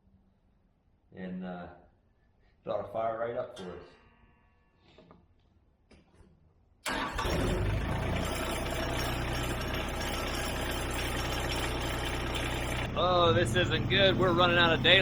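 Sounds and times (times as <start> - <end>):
diesel engine starting and idling: 6.8 - 15.0.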